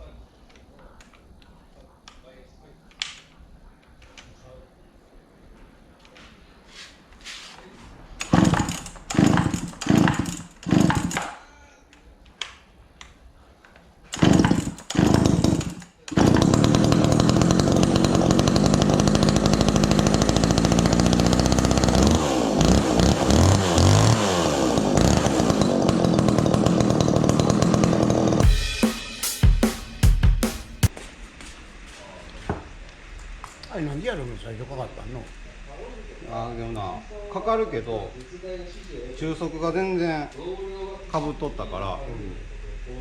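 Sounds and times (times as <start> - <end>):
chainsaw engine revving: 8.2 - 11.3, 14.1 - 30.7.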